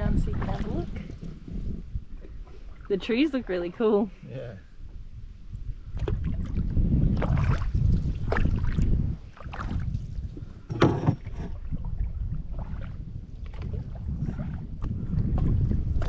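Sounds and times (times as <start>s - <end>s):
wind buffeting microphone: 0.0s - 16.0s
paddle splashes: 0.2s - 1.4s, 2.1s - 3.5s, 5.9s - 16.0s.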